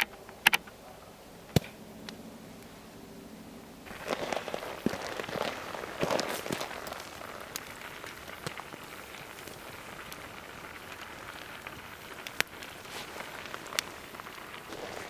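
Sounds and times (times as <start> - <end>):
burning wood popping: 1.4 - 2.8, 3.8 - 15.0
food sizzling in a pan: 3.9 - 15.0.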